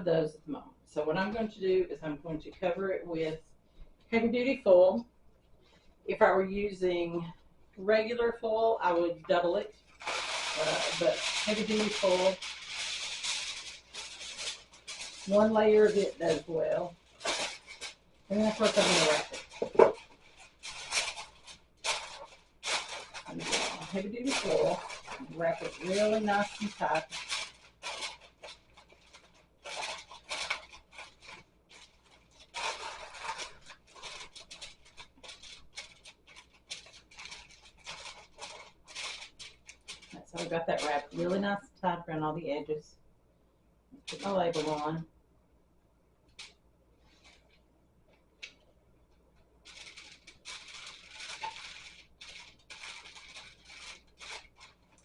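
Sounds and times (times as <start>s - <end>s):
aluminium foil crinkling: 8.9s - 41.5s, 44.0s - 45.0s, 46.3s - 55.0s.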